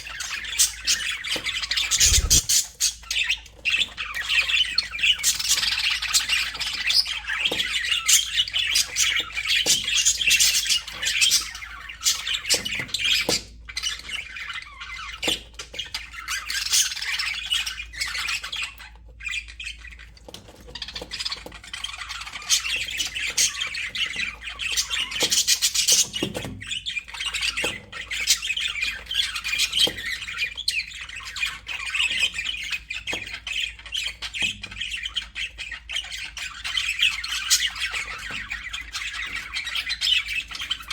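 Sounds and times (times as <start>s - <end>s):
budgerigars chattering: 1.8s - 3.0s.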